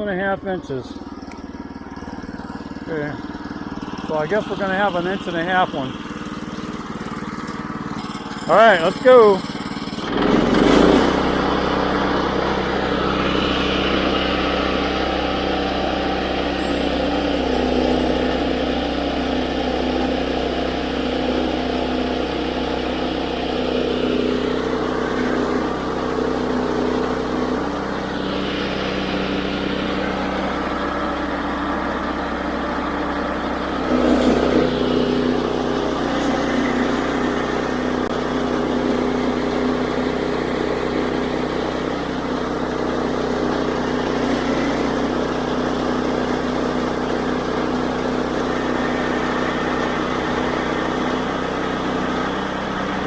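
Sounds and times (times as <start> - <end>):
sawmill engine running: 0.0 - 53.0
band blade cutting log: 33.8 - 36.8.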